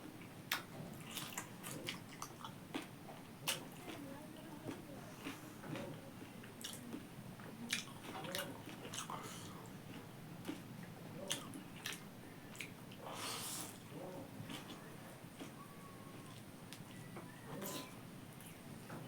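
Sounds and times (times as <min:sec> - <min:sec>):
wet chewing and biting: 0:06.6 - 0:07.1, 0:07.7 - 0:15.6.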